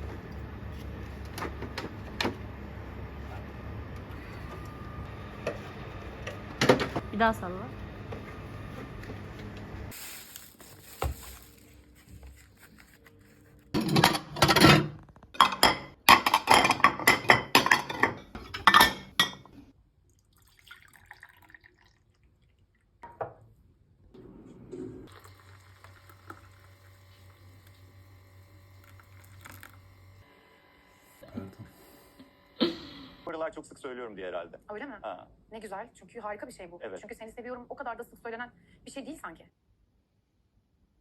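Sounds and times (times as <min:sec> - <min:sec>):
glassware and dishes clinking: 0:13.8 - 0:19.6.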